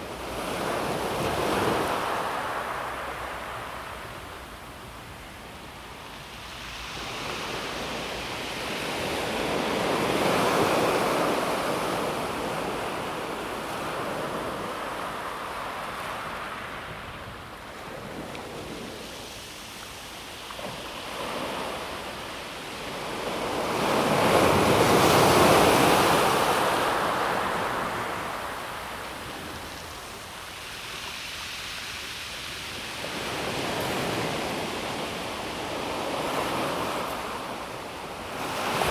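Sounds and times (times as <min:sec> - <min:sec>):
waves on pebble beach: 0:17.8 - 0:38.9.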